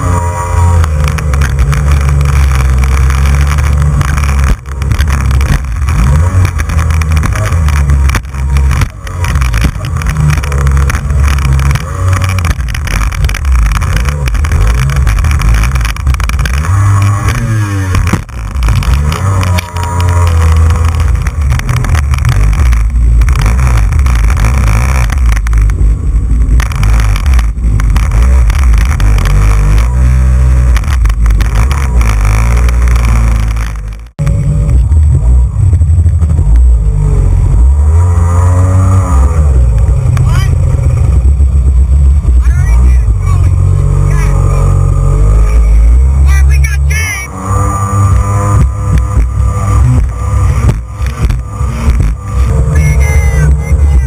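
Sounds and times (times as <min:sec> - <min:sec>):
jet ski engine: 0:00.0 - 0:54.0
wind rumble on microphone: 0:00.0 - 0:54.0.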